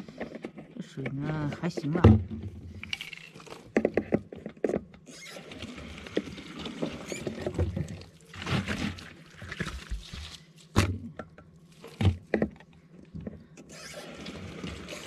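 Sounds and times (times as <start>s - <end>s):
water running from a pipe: 5.1s - 10.5s, 13.7s - 15.0s.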